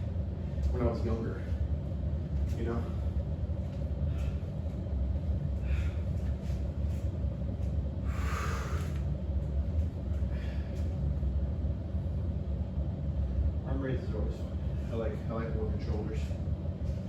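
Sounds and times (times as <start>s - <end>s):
steady low rumble: 0.0s - 17.0s
man breathing hard: 4.0s - 4.7s, 5.5s - 6.7s, 8.0s - 9.1s, 10.2s - 11.0s.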